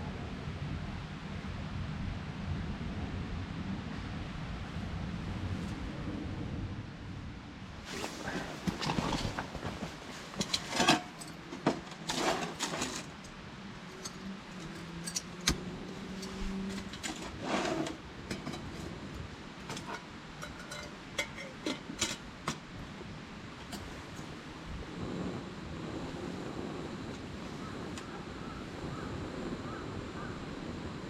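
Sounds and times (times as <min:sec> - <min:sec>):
short rustling: 0:07.8 - 0:18.0
light clicks and metallic clinks: 0:10.3 - 0:19.0, 0:19.6 - 0:22.6, 0:23.6 - 0:24.3.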